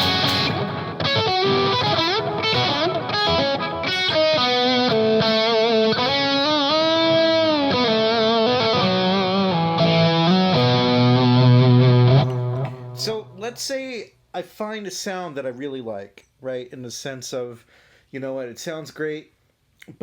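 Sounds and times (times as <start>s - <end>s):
distorted electric guitar notes: 0.0s - 13.1s.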